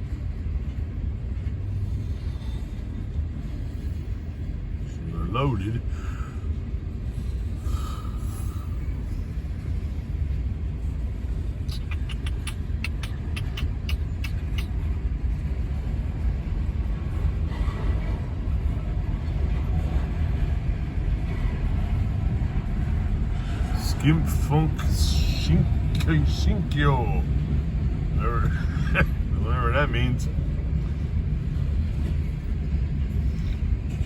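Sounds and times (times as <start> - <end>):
freight train cars rumbling: 0.0 - 34.0
sharp clicks: 11.7 - 14.7.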